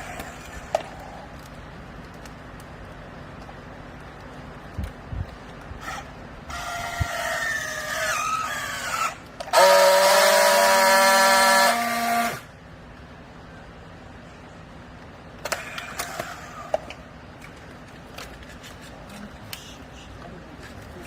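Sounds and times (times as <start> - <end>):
baler machine whine: 5.8 - 12.8.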